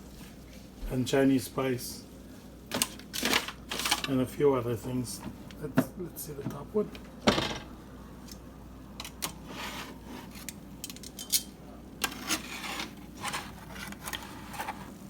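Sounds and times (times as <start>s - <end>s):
metal cookware clinking: 10.8s - 11.6s.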